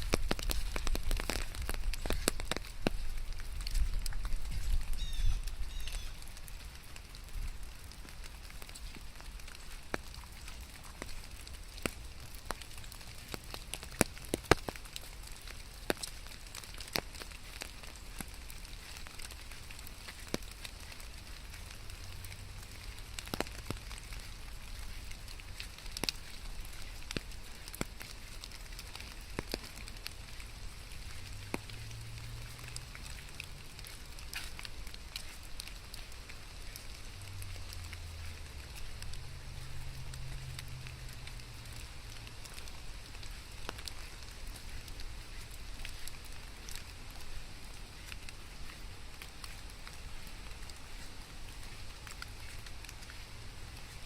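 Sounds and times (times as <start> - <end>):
faint low rumble: 0.0 - 54.0
steady rain: 0.0 - 54.0.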